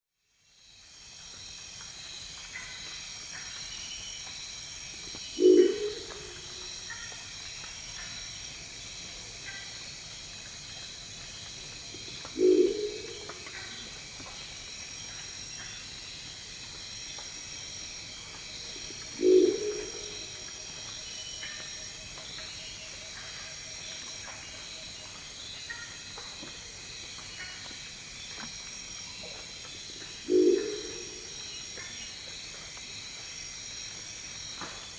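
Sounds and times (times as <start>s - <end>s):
faint chirps: 5.2s - 7.1s, 10.9s - 15.9s, 17.0s - 32.6s
owl croaking calls: 5.4s - 6.7s, 12.4s - 13.8s, 19.1s - 20.4s, 30.2s - 31.4s.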